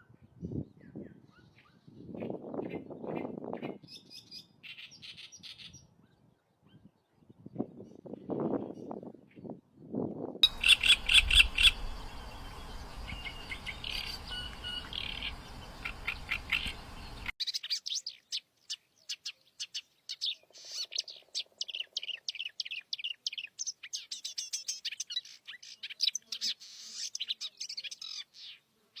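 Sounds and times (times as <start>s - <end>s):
background hiss: 10.4s - 17.3s
reed warbler singing: 10.4s - 17.3s.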